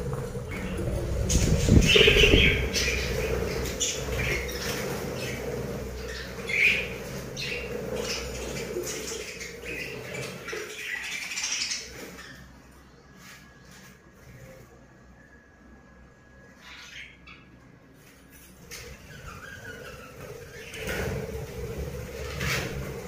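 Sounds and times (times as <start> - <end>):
budgerigars chirping: 0.5 - 12.4.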